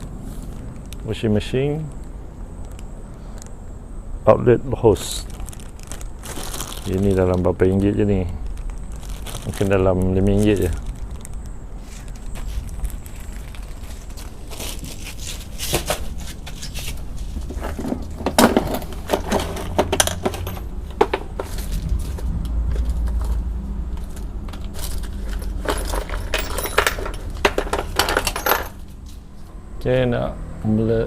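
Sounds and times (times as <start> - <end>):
small hard objects clattering: 4.9 - 29.0
low hum: 17.0 - 30.8.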